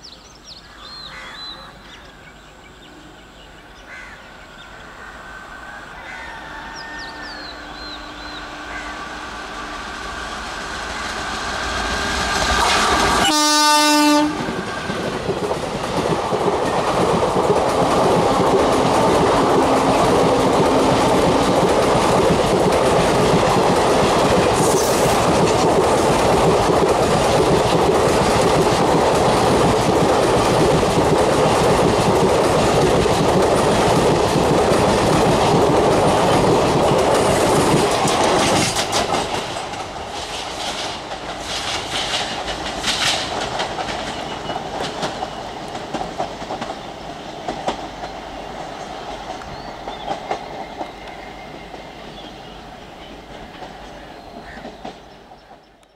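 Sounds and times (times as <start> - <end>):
train horn blast: 6.4 - 10.2, 12.6 - 14.8
train wheels clattering on track: 7.7 - 55.9.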